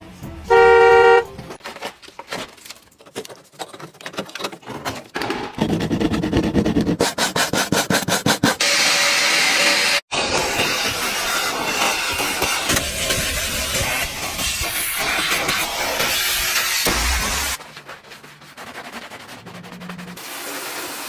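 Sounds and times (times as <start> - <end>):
scrubbing and rubbing strokes: 17.6 - 21.0.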